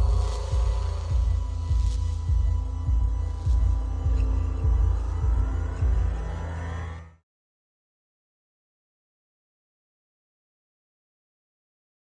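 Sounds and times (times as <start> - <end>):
ambient music with bass pulse: 0.0 - 7.2.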